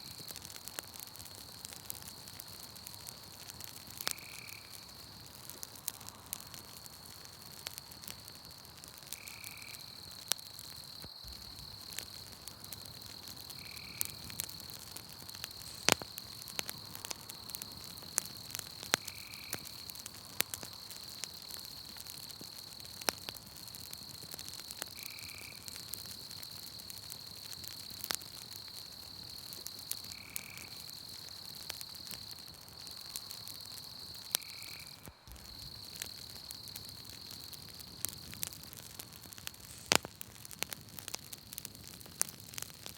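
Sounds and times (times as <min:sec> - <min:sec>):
campfire crackling and popping: 0:00.0 - 0:42.9
high-pitched insect trill: 0:03.9 - 0:05.2, 0:09.2 - 0:19.9, 0:27.4 - 0:38.4.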